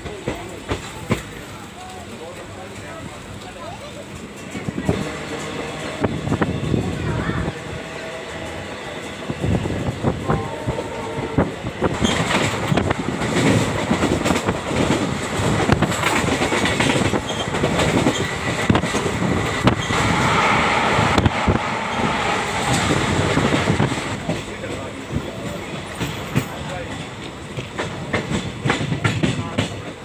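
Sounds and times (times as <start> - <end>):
train rumble: 0.0 - 30.0
wheels clattering over rail joints: 11.8 - 20.2.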